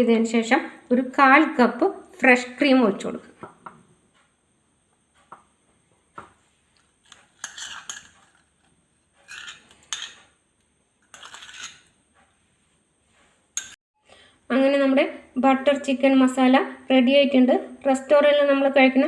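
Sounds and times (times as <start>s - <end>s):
spoon scraping a cooking pan: 7.0s - 10.4s, 11.0s - 12.0s, 13.5s - 13.8s.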